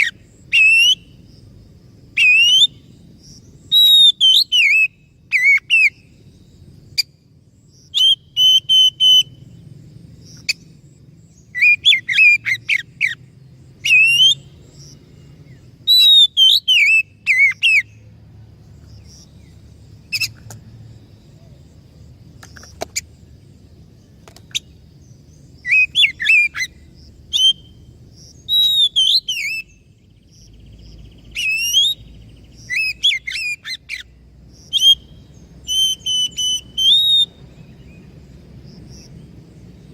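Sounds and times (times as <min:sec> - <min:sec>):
bird singing whistled phrases: 0:00.0 - 0:01.2, 0:02.2 - 0:02.8, 0:03.7 - 0:06.1, 0:07.9 - 0:09.5, 0:11.5 - 0:13.2, 0:13.8 - 0:14.5, 0:15.8 - 0:18.0, 0:25.6 - 0:27.8, 0:28.4 - 0:29.9, 0:31.2 - 0:34.1, 0:34.7 - 0:37.8.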